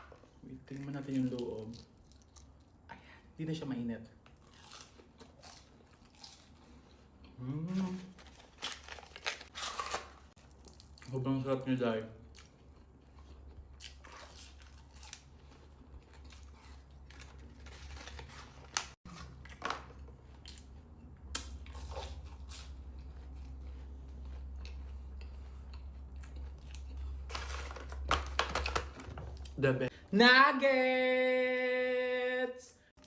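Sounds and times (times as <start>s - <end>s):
chewing pastry: 0.2s - 2.8s, 4.3s - 27.4s.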